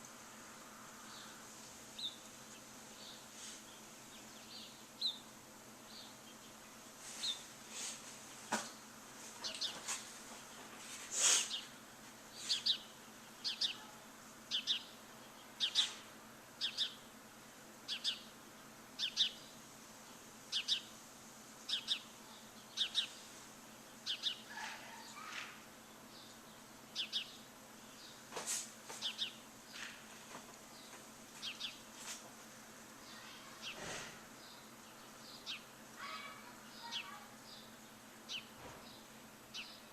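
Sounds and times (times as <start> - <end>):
faint steady hiss: 0.0 - 39.9
bird chirping: 2.0 - 7.5, 11.4 - 16.0, 16.6 - 17.1, 17.9 - 18.3, 19.0 - 20.9, 21.6 - 28.2, 29.0 - 29.9, 30.7 - 31.8, 34.4 - 39.9.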